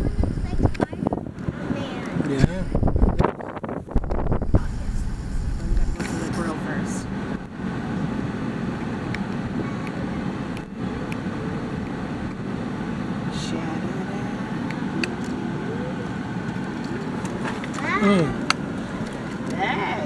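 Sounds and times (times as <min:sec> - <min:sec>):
car driving rumble: 0:00.0 - 0:20.0
faint voices: 0:07.7 - 0:11.8, 0:13.3 - 0:20.0.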